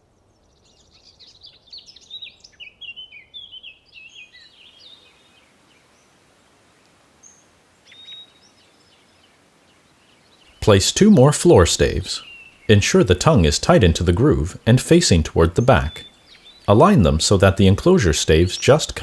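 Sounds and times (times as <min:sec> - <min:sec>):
songbird warbling: 0:00.4 - 0:06.1, 0:07.2 - 0:19.0
short bird calls: 0:07.2 - 0:10.6, 0:11.5 - 0:12.8, 0:15.6 - 0:16.8.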